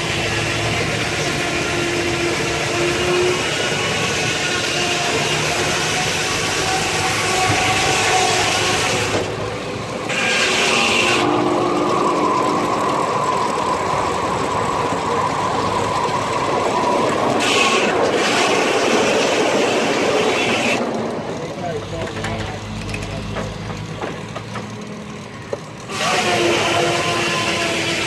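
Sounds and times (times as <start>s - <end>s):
steady whine: 0.0s - 21.9s
steam sawmill running: 0.0s - 28.0s.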